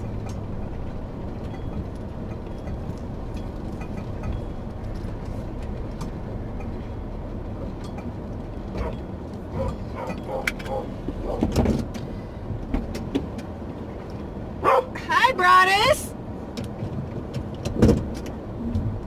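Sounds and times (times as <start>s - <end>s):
road noise: 0.0s - 19.0s
van engine rumble: 0.0s - 19.0s.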